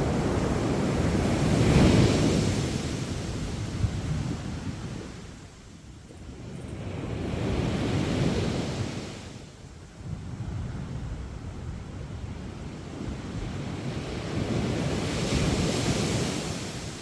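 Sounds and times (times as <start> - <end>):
waves washing onto sandy beach: 0.0 - 5.4, 12.8 - 17.0.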